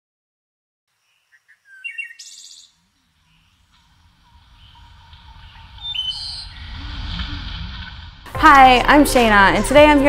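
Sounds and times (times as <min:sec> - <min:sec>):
birds chirping and trilling: 0:00.9 - 0:08.2
low background rumble: 0:03.0 - 0:10.0.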